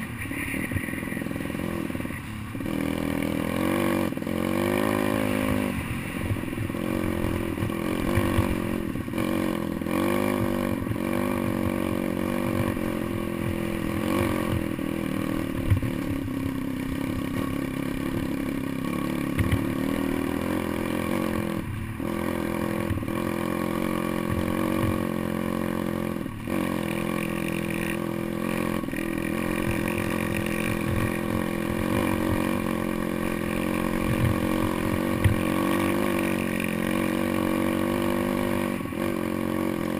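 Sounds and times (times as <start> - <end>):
pit bike engine revving: 0.0 - 39.9
bike knocking and rattling: 6.6 - 9.3, 9.9 - 19.9, 28.4 - 37.1.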